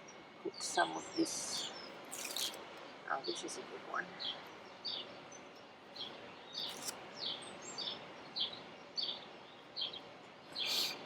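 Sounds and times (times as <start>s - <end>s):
bird chirping: 4.2s - 11.0s.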